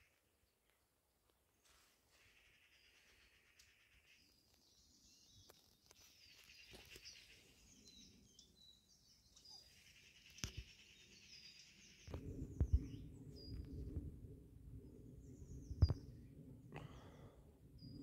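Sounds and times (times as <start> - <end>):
small birds chirping: 2.2 - 14.0, 15.0 - 17.1
low rumbling noise: 12.1 - 18.0.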